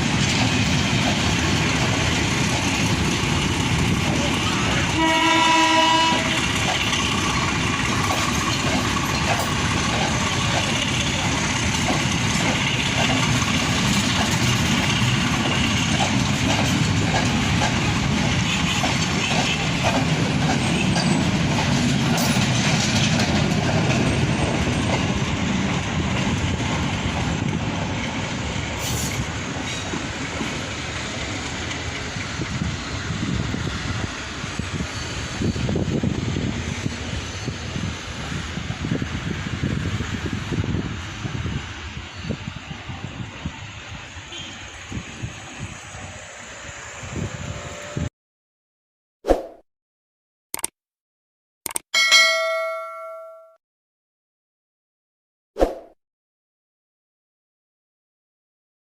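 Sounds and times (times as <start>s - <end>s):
train rumble: 0.0s - 48.1s
train horn: 4.5s - 6.5s
wheels clacking over rail joints: 6.2s - 32.3s.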